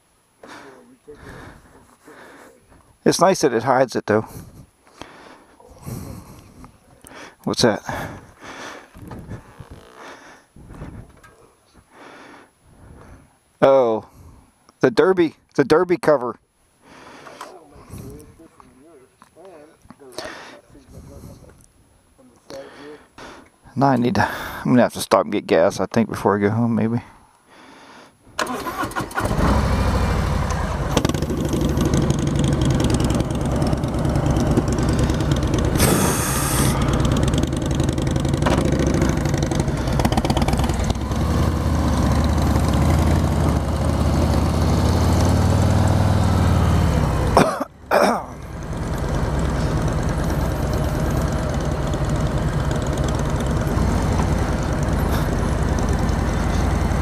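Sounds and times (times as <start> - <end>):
motorcycle engine starting and running: 9.0 - 10.1, 28.4 - 57.0.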